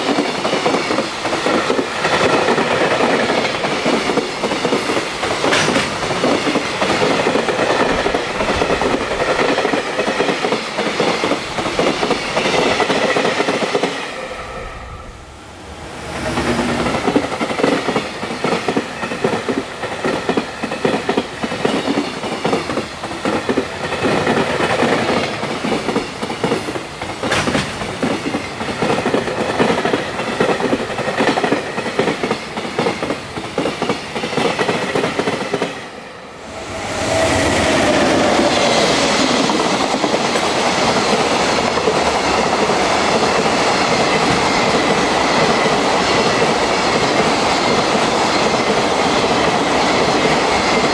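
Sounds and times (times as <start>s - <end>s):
electric locomotive rushing past: 0.0s - 50.9s
freight wagons rattling over rail joints: 1.4s - 13.0s, 16.4s - 35.1s.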